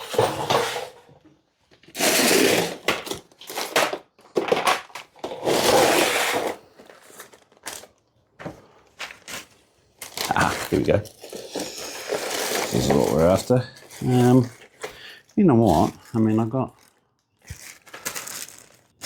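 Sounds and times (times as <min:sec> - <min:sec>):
rummaging rustling and rattling: 0:00.0 - 0:01.1, 0:01.7 - 0:19.0.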